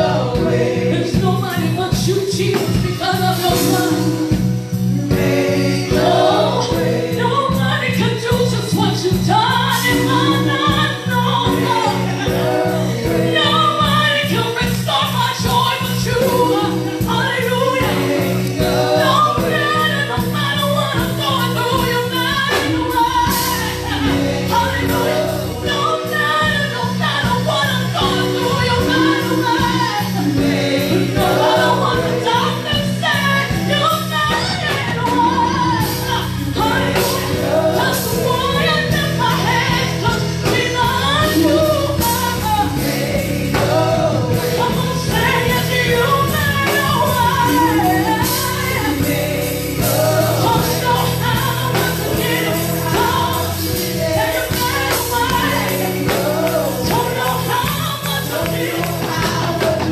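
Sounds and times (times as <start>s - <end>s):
band with bass and keyboard: 0.0s - 59.9s
choir singing gospel: 0.0s - 59.9s.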